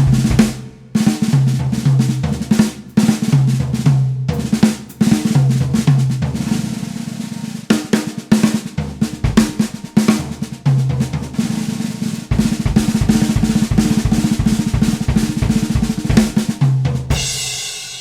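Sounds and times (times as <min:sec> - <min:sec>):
low ringing drum tones: 0:00.0 - 0:01.6
snare drum rolls: 0:00.0 - 0:03.5, 0:07.7 - 0:10.6, 0:11.4 - 0:17.4.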